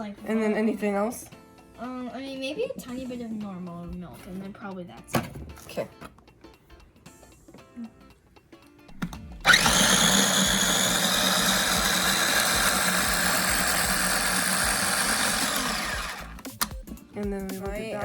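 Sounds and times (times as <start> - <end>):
kitchen blender running: 9.4 - 16.4.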